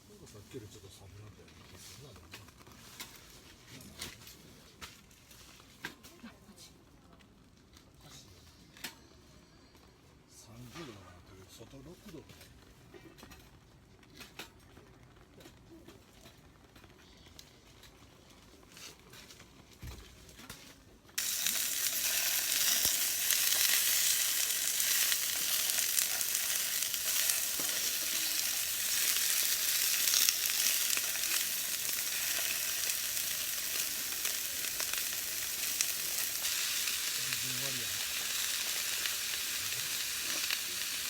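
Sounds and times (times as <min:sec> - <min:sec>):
food sizzling: 0:21.2 - 0:41.0.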